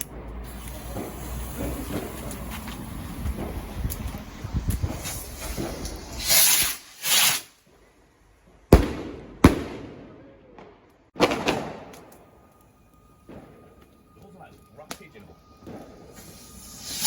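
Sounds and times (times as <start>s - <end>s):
firework bangs echoing: 0.1s - 7.5s, 8.6s - 12.5s, 13.1s - 17.0s
firework hissing whooshes: 0.3s - 7.9s, 15.1s - 17.0s.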